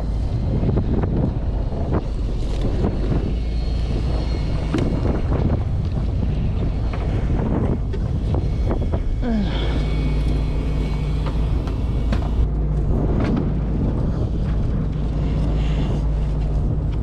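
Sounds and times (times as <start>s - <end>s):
boat engine running: 0.0s - 17.0s
wind buffeting microphone: 0.0s - 17.0s.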